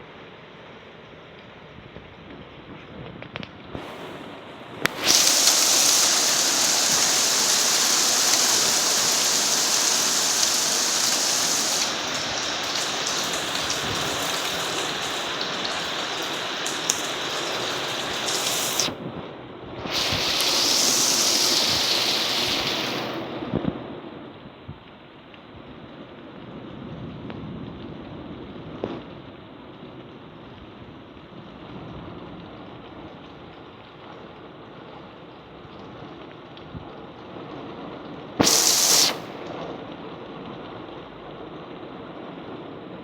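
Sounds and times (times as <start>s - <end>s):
heavy rain and hail: 3.8s - 19.0s, 19.9s - 23.5s, 37.2s - 41.0s.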